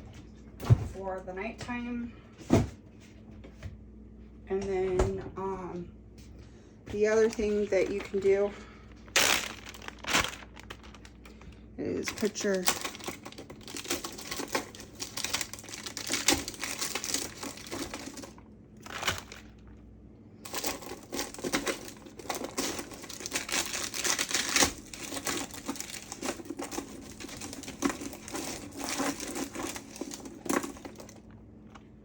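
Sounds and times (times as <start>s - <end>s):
bag crinkling and rustling: 7.2s - 19.7s, 20.4s - 31.8s.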